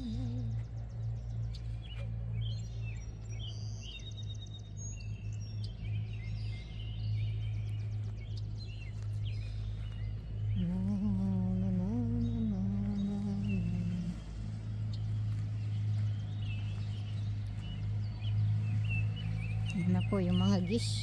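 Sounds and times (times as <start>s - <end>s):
person humming: 0.0s - 0.7s, 10.5s - 14.4s
low drone: 0.0s - 21.0s
songbirds chirping and singing: 0.0s - 21.0s.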